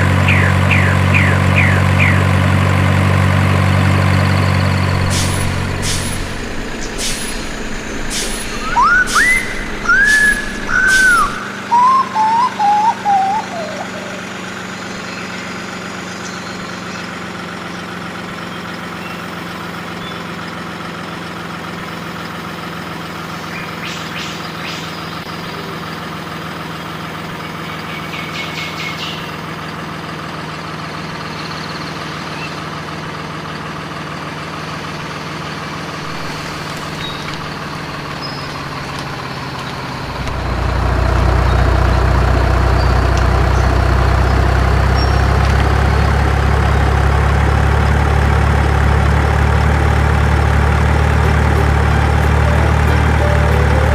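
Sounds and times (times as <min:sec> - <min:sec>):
low engine hum: 0:00.0 - 0:53.9
truck engine running: 0:00.0 - 0:53.9
rising and falling whistling chirps: 0:04.5 - 0:15.5.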